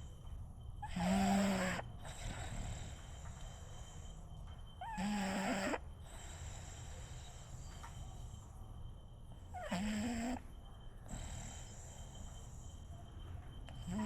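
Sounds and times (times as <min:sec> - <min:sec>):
dog snoring: 0:00.8 - 0:04.2, 0:04.8 - 0:08.4, 0:09.4 - 0:12.8, 0:13.7 - 0:14.0.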